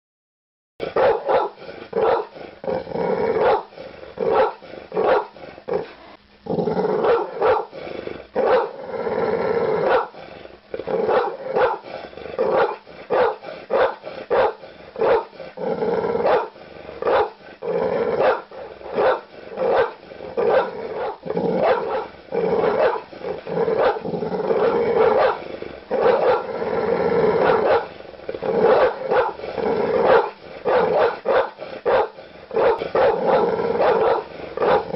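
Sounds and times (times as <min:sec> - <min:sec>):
large dog barking: 0:00.8 - 0:02.4, 0:03.3 - 0:05.4, 0:06.9 - 0:07.8, 0:08.4 - 0:08.8, 0:09.8 - 0:10.2, 0:10.8 - 0:15.4, 0:16.1 - 0:17.4, 0:18.0 - 0:26.6, 0:27.2 - 0:34.9
dog growling: 0:00.8 - 0:34.9.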